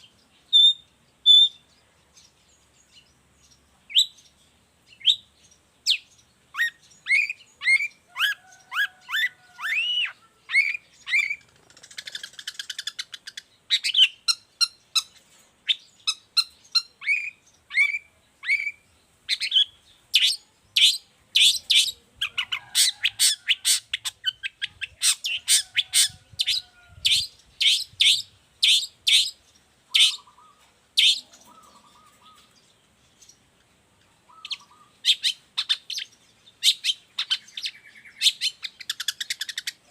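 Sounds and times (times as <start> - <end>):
bird song: 0.0 - 39.9
harsh buzzy bird call: 6.6 - 13.2
rapid bird chattering: 6.6 - 18.7, 19.3 - 32.6, 34.3 - 39.9.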